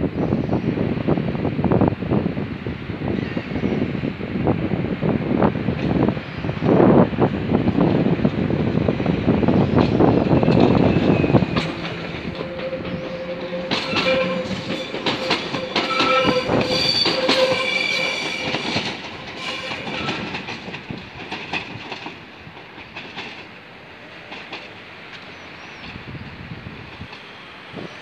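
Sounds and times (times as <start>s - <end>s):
train wheel squeal: 9.6s - 20.6s, 25.2s - 28.0s
wheels clicking over rail joints: 9.7s - 23.6s.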